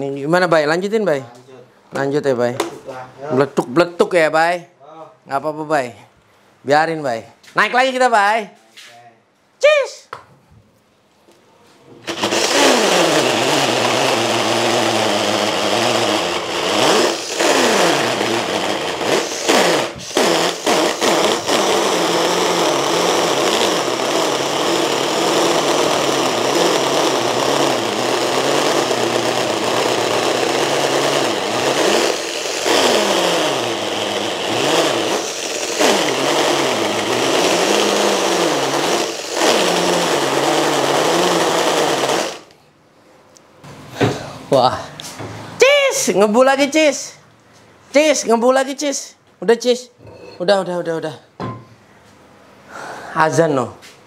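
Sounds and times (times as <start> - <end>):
impact drill boring into concrete: 12.1 - 42.5.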